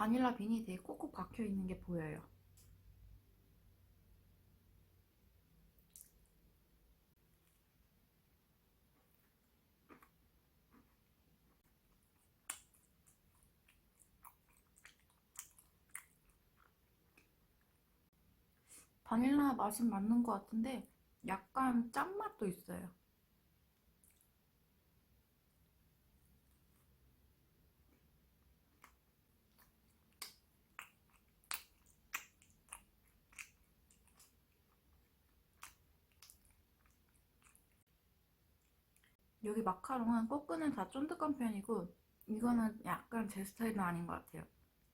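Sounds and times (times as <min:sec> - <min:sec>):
chewing mouth sounds: 0:09.2 - 0:17.8, 0:28.7 - 0:37.9
sharp snap of biting: 0:30.1 - 0:32.5.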